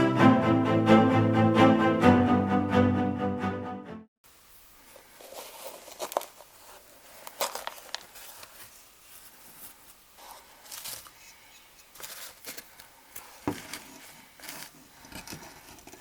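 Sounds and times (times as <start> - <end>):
intro music: 0.0 - 4.1.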